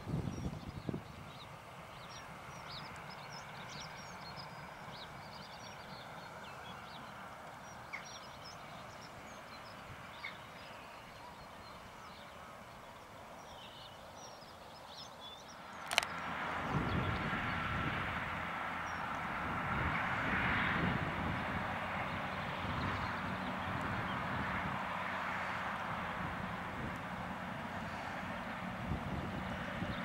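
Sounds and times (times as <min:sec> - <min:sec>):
birds chirping: 0:00.0 - 0:17.7
small clicks: 0:15.8 - 0:16.2.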